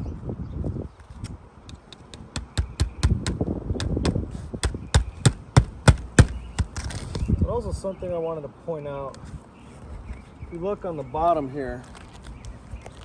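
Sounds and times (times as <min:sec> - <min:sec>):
hammer driving nails into shingles: 0:02.0 - 0:07.2.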